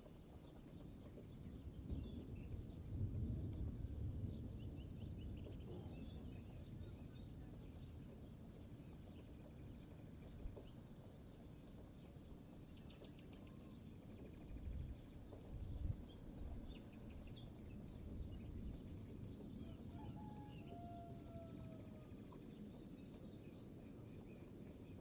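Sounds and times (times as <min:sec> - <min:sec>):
distant thunder rumbling: 0:01.8 - 0:08.7
small birds chirping: 0:04.3 - 0:25.0.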